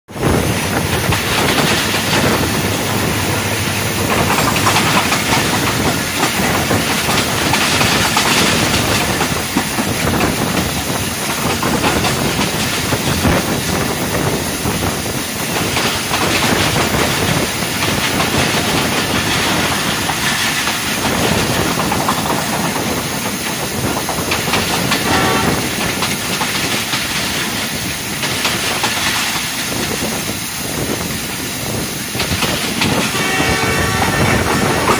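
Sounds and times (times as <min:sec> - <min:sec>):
rush of wind: 0:00.1 - 0:34.9
train wheels on rails: 0:00.1 - 0:34.9.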